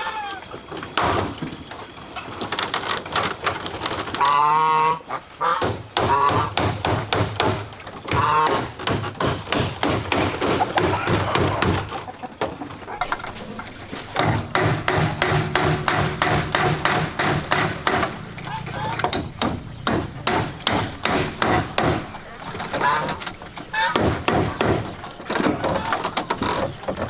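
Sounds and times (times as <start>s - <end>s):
wavering animal calls: 0.0s - 0.6s, 18.2s - 19.8s
rapid knocking and tapping: 5.6s - 11.9s, 14.2s - 22.1s.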